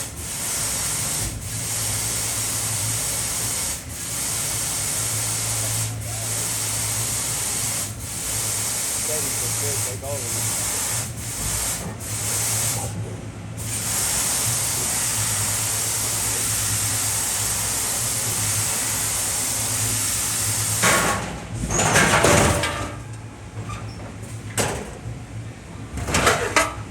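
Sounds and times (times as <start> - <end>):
laser cutter hissing: 0.0 - 13.0, 13.6 - 21.1
low machine hum: 19.7 - 26.9
knocking and metallic clatter: 20.8 - 25.1, 26.0 - 26.9.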